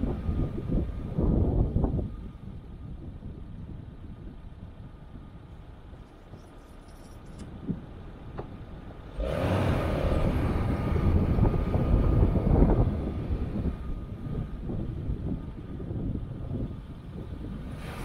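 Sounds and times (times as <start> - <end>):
off-road vehicle engine revving: 9.1 - 14.8.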